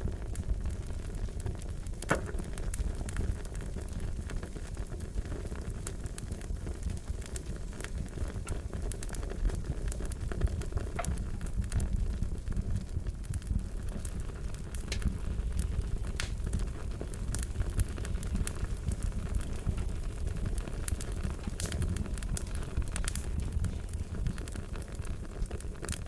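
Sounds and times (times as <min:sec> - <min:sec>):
fire crackling: 0:00.0 - 0:26.0.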